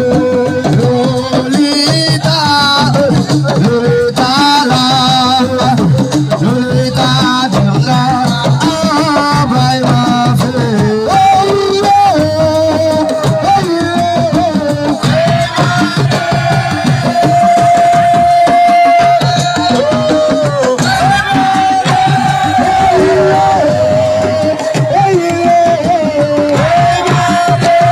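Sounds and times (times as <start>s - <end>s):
fast hand percussion: 0.0s - 27.9s
bending melodic lead line: 22.5s - 24.6s.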